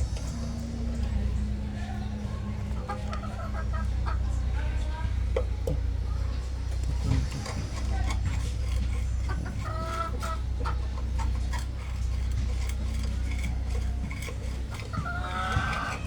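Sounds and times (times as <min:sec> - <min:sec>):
low electrical hum: 0:00.0 - 0:16.0
chicken clucking: 0:01.9 - 0:04.8, 0:07.1 - 0:16.0.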